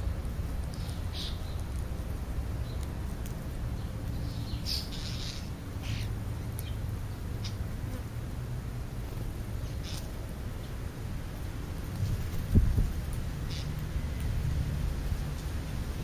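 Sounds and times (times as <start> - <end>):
birds chirping and pecking: 0.4 - 7.8, 9.0 - 16.0.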